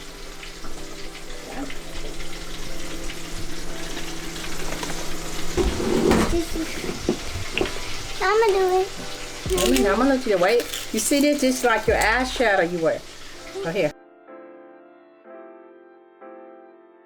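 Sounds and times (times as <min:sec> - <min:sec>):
chicken deep-frying in oil: 0:00.0 - 0:05.6, 0:06.3 - 0:13.9.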